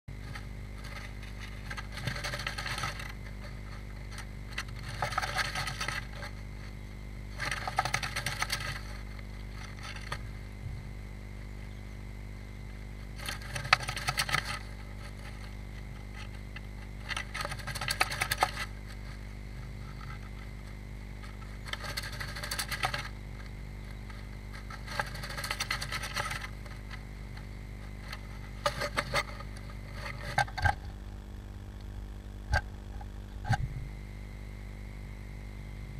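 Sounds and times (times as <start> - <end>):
low electrical hum: 0.0 - 35.9
bird scratching nest material: 0.1 - 31.0.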